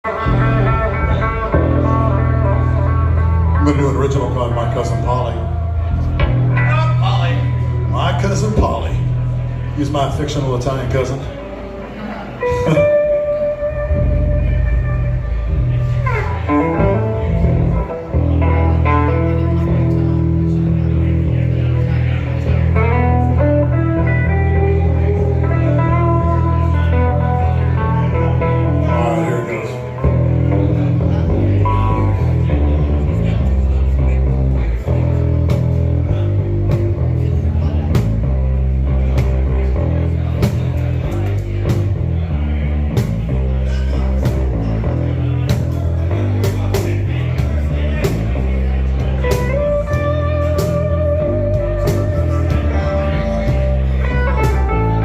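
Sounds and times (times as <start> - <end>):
plucked guitar music: 0.0 - 55.0
steady drum beat: 44.1 - 55.0.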